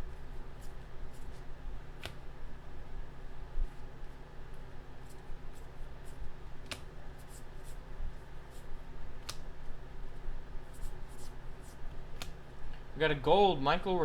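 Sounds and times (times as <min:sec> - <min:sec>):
cards sliding against each other: 0:02.0 - 0:02.2, 0:06.6 - 0:07.8, 0:08.6 - 0:09.5, 0:10.7 - 0:12.4.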